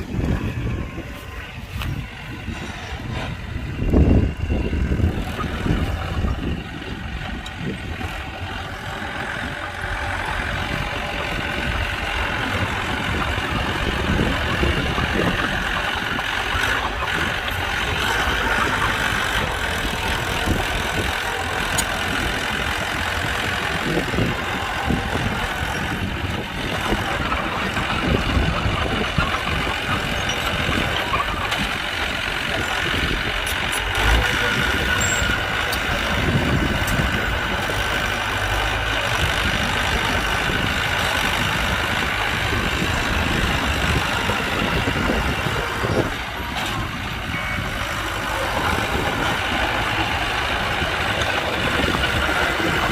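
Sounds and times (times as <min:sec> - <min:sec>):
diesel machinery engine running: 0:00.0 - 0:52.9.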